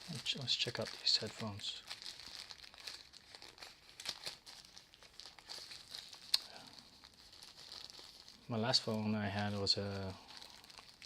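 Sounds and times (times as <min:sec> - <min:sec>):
plastic wrap crinkling: 0:00.0 - 0:11.0.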